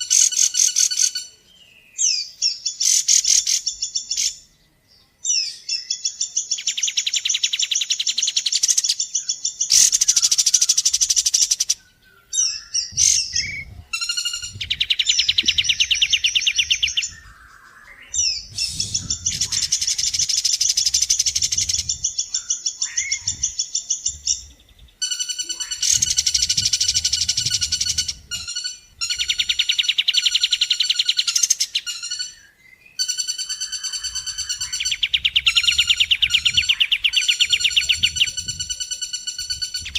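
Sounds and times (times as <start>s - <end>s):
bird chattering notes: 12.4s - 32.4s, 33.0s - 39.9s
bird rattling trills: 18.2s - 23.8s, 25.0s - 32.4s.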